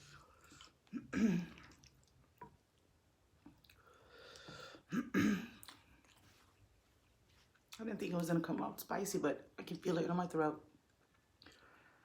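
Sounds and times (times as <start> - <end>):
woman clearing her throat: 0.9 - 1.6, 4.9 - 5.6
faint breath: 3.8 - 4.9.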